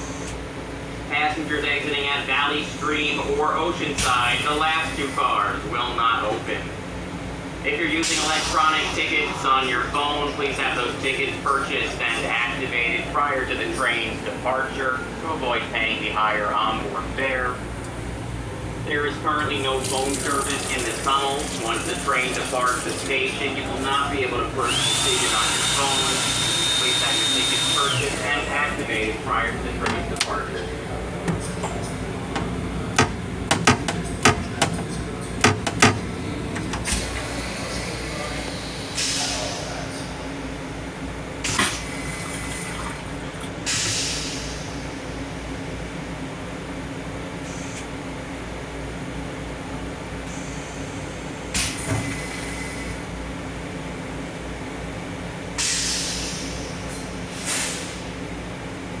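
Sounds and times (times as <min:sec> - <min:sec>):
electric rail car humming: 0:00.0 - 0:51.6
railcar interior hum: 0:14.1 - 0:20.8, 0:28.6 - 0:41.4
sharp knocks and clacks: 0:31.3 - 0:36.0
hissing air bursts: 0:36.8 - 0:40.0, 0:55.6 - 0:58.0.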